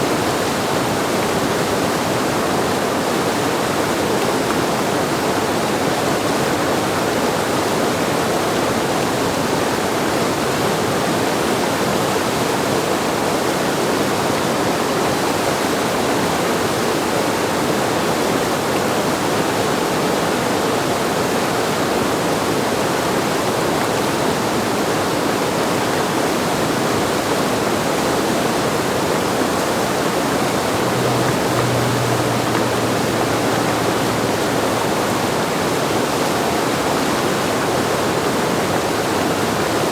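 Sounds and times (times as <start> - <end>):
whitewater rushing: 0.0 - 39.9.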